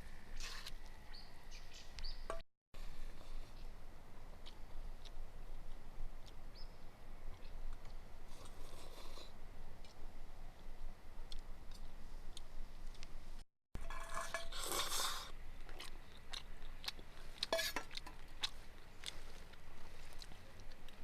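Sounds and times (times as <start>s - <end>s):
rustling crunch: 9.8s - 21.0s
person chewing and crunching: 14.6s - 21.0s.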